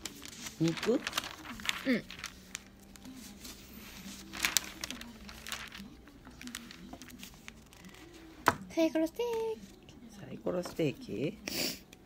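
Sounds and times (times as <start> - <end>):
soft crinkling rustles: 0.0 - 8.2.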